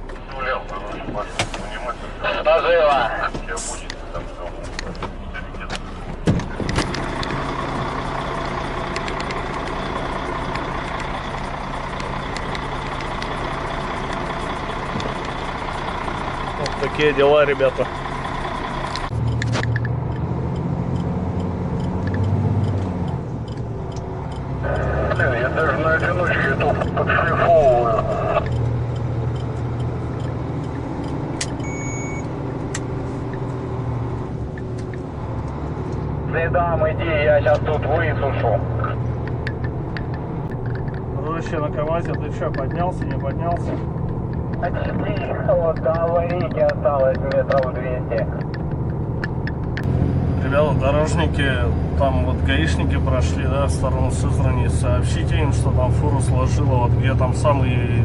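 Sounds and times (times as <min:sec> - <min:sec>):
diesel truck engine running: 0:00.0 - 0:58.0
sharp clicks: 0:06.4 - 0:16.8, 0:17.9 - 0:25.6, 0:28.4 - 0:31.6, 0:38.9 - 0:49.9
thin electronic beep: 0:31.6 - 0:32.3.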